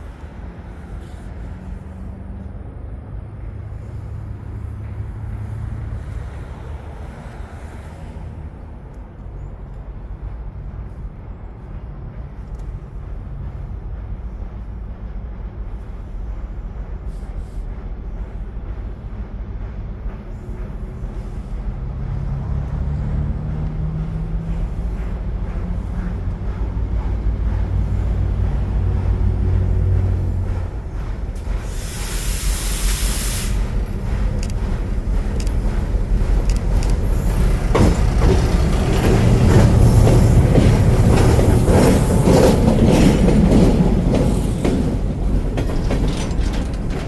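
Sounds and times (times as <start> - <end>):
diesel locomotives rumbling: 0.0 - 47.0.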